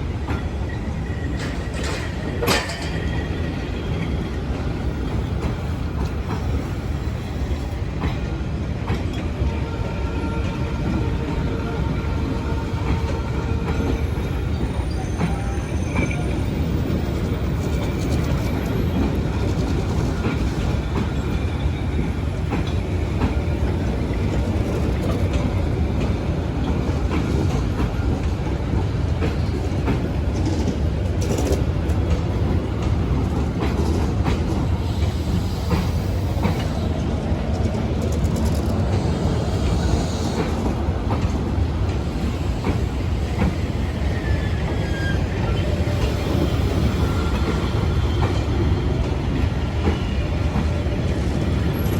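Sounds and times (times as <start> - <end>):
train rumbling on rails: 0.0 - 51.9
wheels clicking over rail joints: 1.4 - 3.1.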